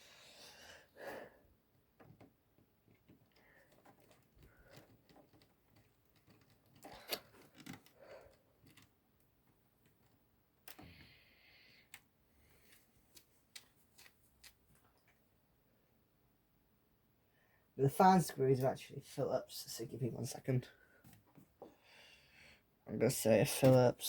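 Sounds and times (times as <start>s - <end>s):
clicks and taps of small parts: 12.7s - 15.2s.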